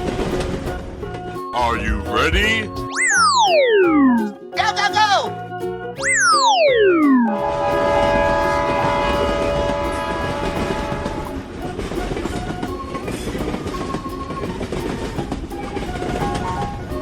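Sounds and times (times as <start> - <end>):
train horn blowing: 7.3 - 12.2
train wheels clacking on rails: 7.6 - 17.0.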